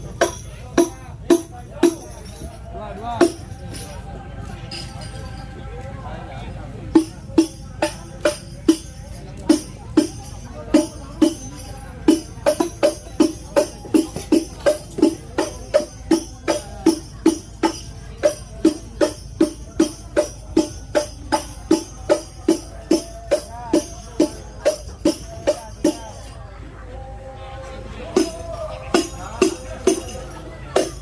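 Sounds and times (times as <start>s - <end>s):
frame drums beating: 0.0s - 2.6s, 3.2s - 3.9s, 6.9s - 26.2s
tambourine jingles: 0.0s - 5.6s, 6.9s - 26.4s, 28.2s - 31.0s.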